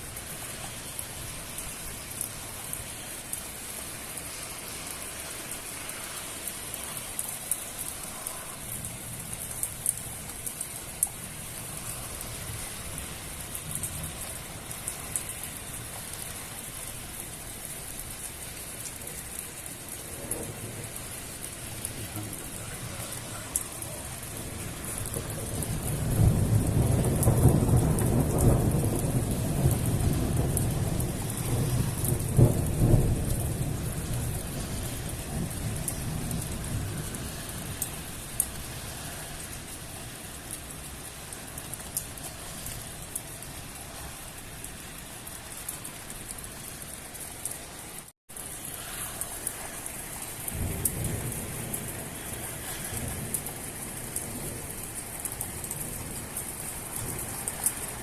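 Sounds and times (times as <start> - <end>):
heavy rain pouring: 0.0 - 58.0
low rumble of thunder: 19.8 - 39.0, 50.4 - 58.0.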